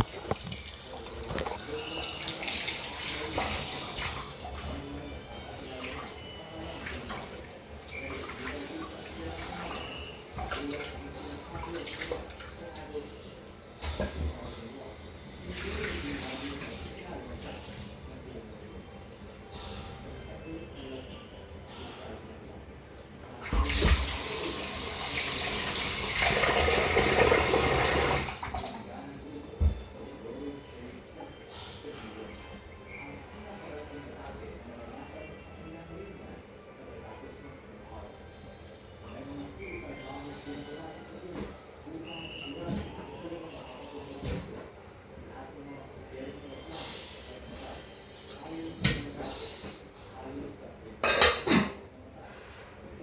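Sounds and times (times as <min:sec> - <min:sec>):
tap water running into sink: 0:00.0 - 0:04.2, 0:23.5 - 0:28.7.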